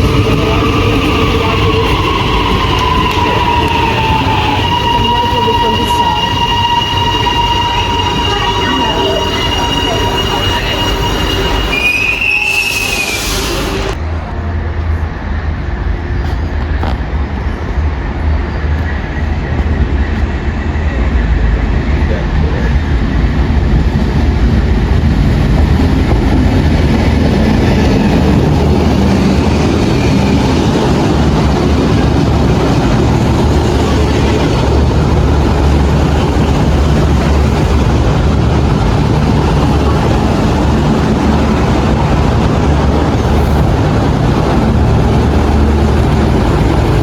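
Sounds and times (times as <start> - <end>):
train rumbling: 0.0 - 47.0.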